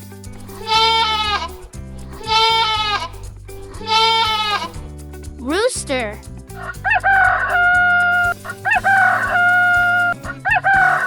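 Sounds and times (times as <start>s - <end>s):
rooster crowing: 6.6s - 11.0s.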